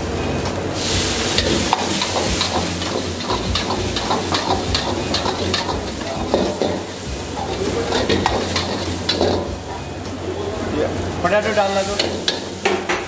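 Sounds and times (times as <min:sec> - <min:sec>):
food sizzling in a pan: 0:00.7 - 0:13.0
metal spatula scraping a pan: 0:01.4 - 0:09.8.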